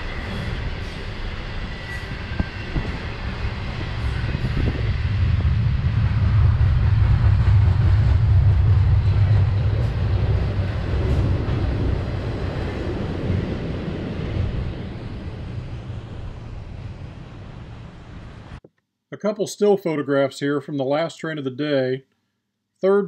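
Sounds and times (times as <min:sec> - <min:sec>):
freight train rolling past: 0:00.0 - 0:18.6.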